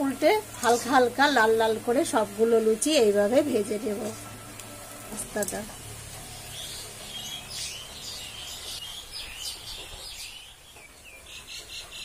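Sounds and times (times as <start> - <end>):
small birds chirping: 6.2 - 12.0.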